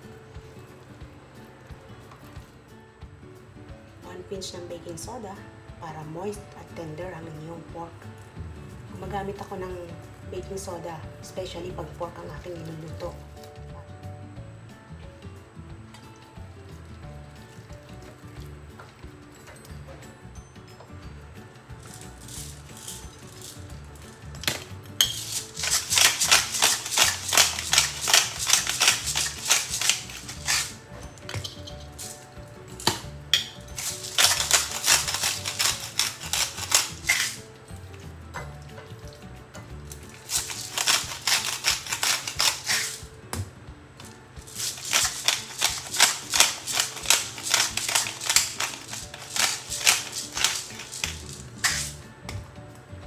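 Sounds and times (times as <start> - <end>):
faint background music: 0.0 - 53.0
pepper mill grinding: 21.7 - 38.1, 39.8 - 43.0, 44.4 - 52.1.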